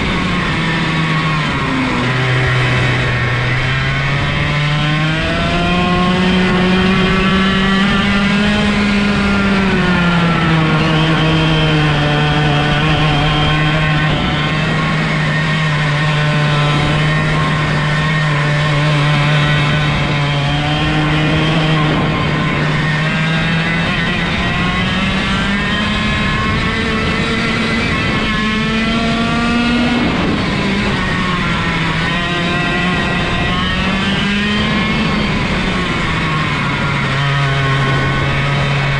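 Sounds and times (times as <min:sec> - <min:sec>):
kart engine at high revs: 0:00.0 - 0:38.9.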